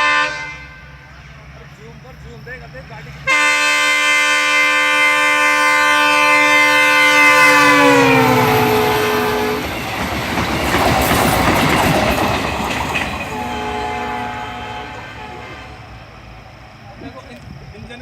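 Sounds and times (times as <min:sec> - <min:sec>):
locomotive horn: 0:00.0 - 0:01.0, 0:03.3 - 0:09.9, 0:13.2 - 0:16.0
train coaches clattering past: 0:06.1 - 0:17.5.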